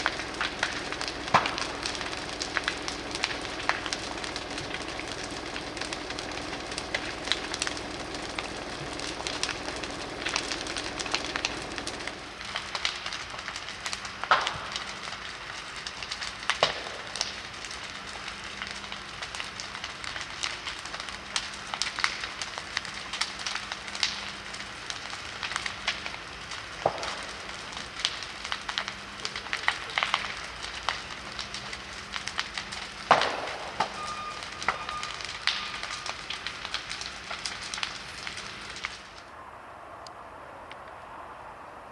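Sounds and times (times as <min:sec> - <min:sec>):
mechanical drone: 0:00.0 - 0:12.6
burning timber crackling and popping: 0:00.0 - 0:41.9.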